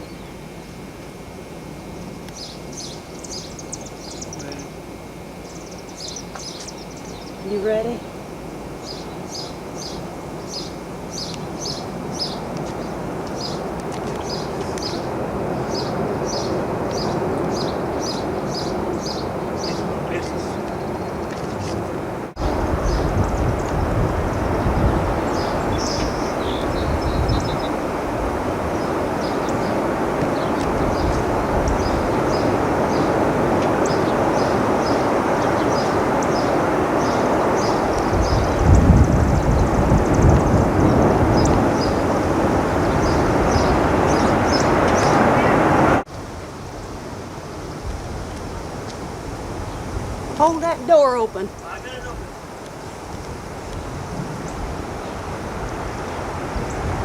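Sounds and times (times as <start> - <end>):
bird chirping: 0.0 - 0.8, 2.3 - 4.8, 5.4 - 8.2, 8.8 - 21.7, 24.3 - 27.8, 28.7 - 42.1, 42.8 - 45.6
rushing wind: 1.2 - 57.0.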